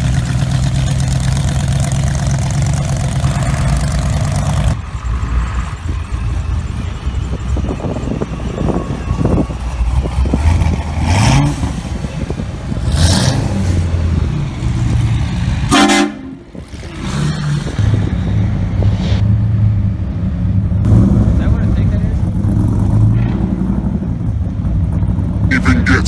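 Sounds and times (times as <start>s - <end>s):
car engines idling and revving: 0.0s - 26.0s
horn-like blast: 15.7s - 16.5s, 25.5s - 26.0s.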